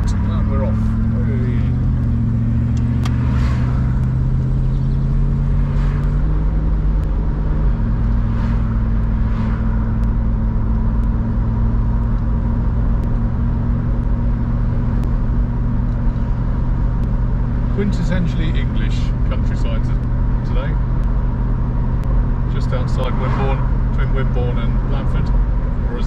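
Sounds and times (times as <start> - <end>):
passing cars swishing: 0.0 - 11.2, 17.5 - 26.0
car engine from inside cabin: 0.0 - 26.0.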